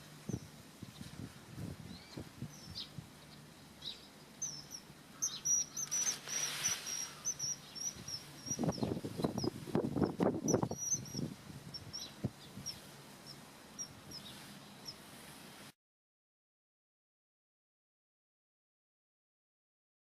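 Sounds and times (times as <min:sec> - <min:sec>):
small birds chirping: 0:00.0 - 0:15.7
kingfisher piping calls: 0:01.9 - 0:15.1.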